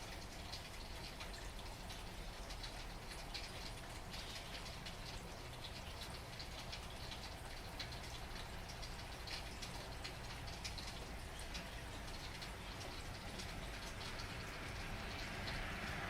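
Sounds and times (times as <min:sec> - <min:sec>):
rain falling: 0:00.0 - 0:16.0
raindrops pattering on a surface: 0:00.0 - 0:16.0.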